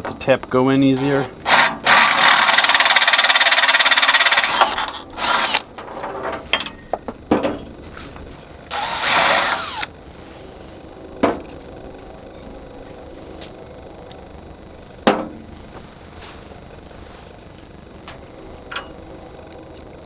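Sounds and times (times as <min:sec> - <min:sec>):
power drill boring into steel: 0:01.0 - 0:05.6, 0:08.7 - 0:09.9.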